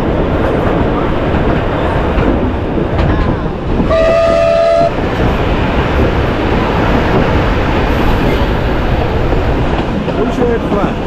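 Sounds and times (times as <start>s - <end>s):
train wheels clattering on rails: 0.0s - 11.0s
locomotive whistle blast: 3.9s - 5.0s.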